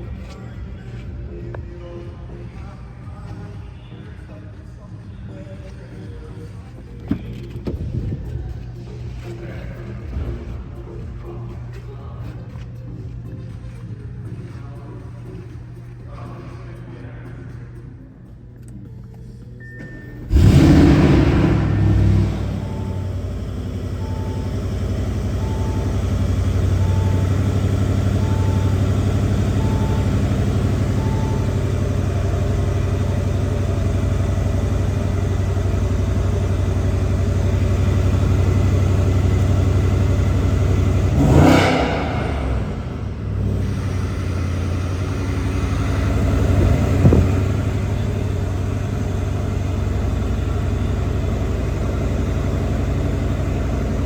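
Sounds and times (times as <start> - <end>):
car engine idling and revving: 0.0 - 3.5, 5.7 - 16.0, 20.2 - 54.0
soft beep: 19.6 - 20.3, 22.3 - 34.3.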